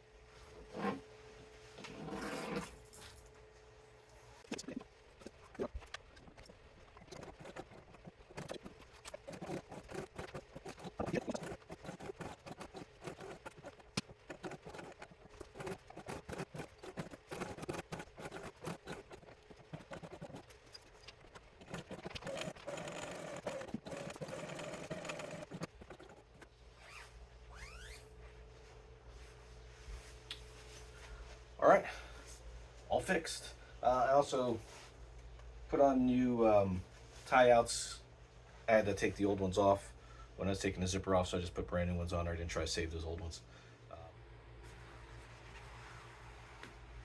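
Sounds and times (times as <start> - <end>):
sewing machine motor hum: 6.3 - 27.0.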